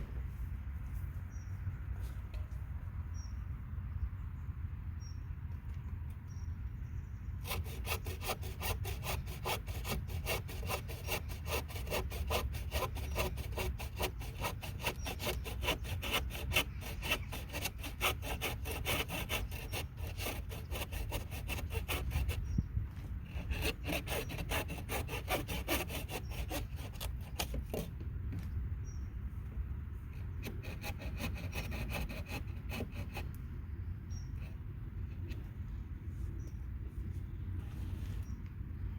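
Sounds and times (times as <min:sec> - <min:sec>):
hand saw cutting: 0:07.4 - 0:22.5, 0:23.3 - 0:28.0, 0:30.4 - 0:33.4.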